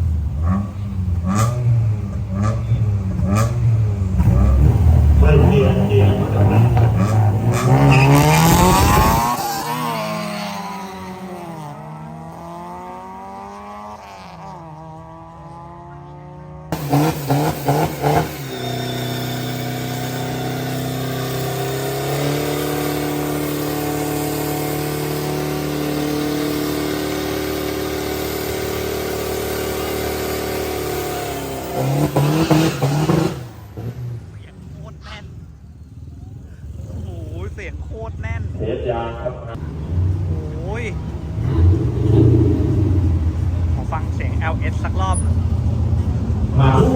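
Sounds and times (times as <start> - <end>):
engine throttle blips: 0.0 - 12.4, 16.7 - 46.9
car engines revving: 0.0 - 46.9
engine held at steady speed: 16.8 - 38.4.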